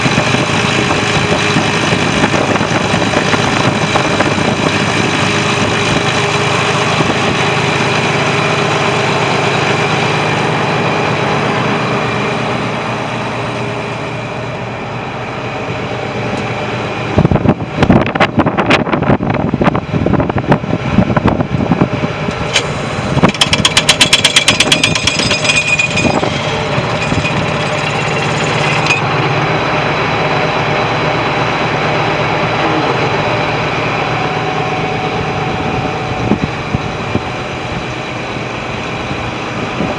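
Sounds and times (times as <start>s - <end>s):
tractor diesel engine running: 0.0s - 18.5s, 19.8s - 39.9s
loud sharp knocks and rattles: 22.4s - 29.1s.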